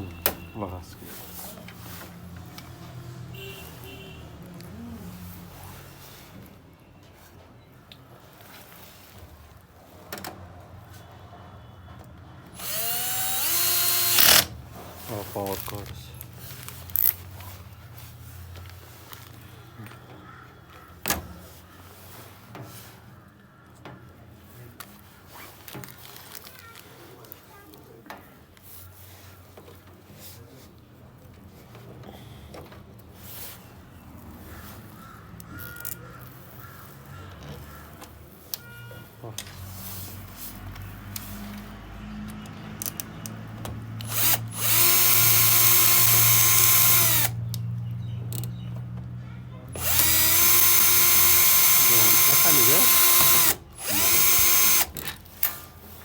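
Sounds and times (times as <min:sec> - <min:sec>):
power drill motor whining: 0:12.6 - 0:15.8, 0:44.0 - 0:47.4, 0:49.7 - 0:55.2.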